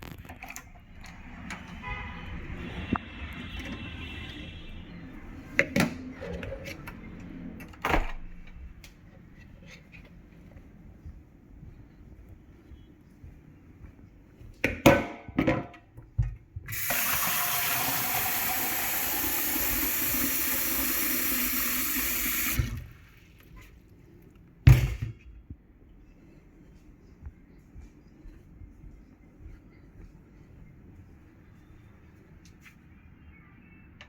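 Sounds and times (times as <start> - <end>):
tap water running: 16.7 - 23.0.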